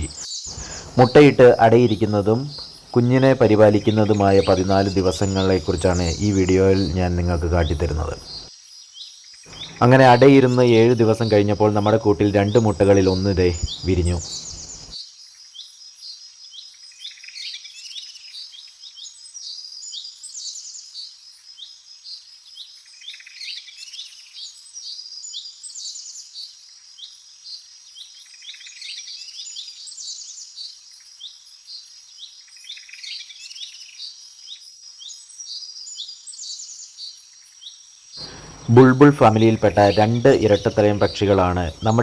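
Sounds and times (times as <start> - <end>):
birds chirping and calling: 0.0 - 8.5, 9.5 - 14.9, 38.2 - 42.0.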